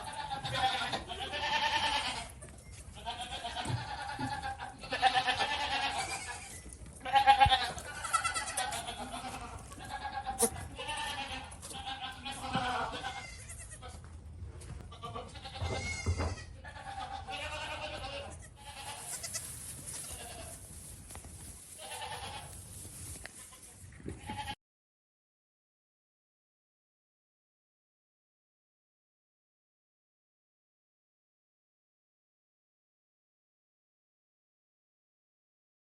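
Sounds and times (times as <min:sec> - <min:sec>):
goats bleating: 0:00.0 - 0:14.1, 0:14.8 - 0:24.6.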